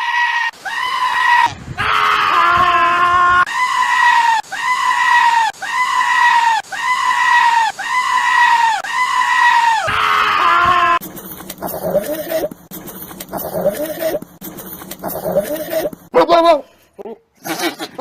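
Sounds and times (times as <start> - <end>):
goat bleating: 15.0 - 16.6, 17.4 - 18.0.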